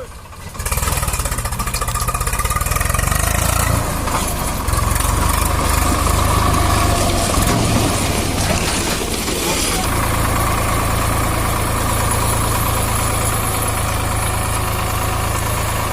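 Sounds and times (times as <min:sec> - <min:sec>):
diesel engine running: 0:00.0 - 0:15.9.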